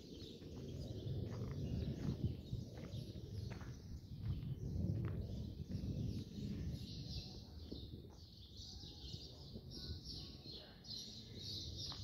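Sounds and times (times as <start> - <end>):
steady low rumble: 0.0 - 8.2
birds chirping: 0.0 - 12.0.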